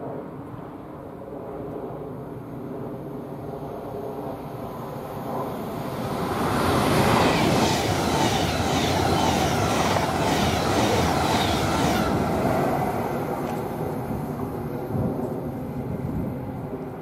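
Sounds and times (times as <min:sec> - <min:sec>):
train passing rushing noise: 0:03.6 - 0:17.0.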